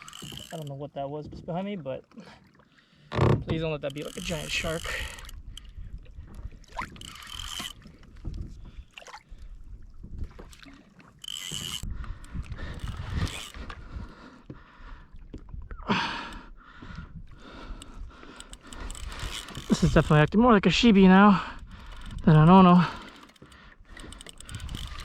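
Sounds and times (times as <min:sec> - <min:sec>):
water sloshing around kayak: 0:00.0 - 0:25.0
wind rumbling on microphone: 0:03.5 - 0:10.6, 0:11.5 - 0:14.2, 0:23.9 - 0:25.0.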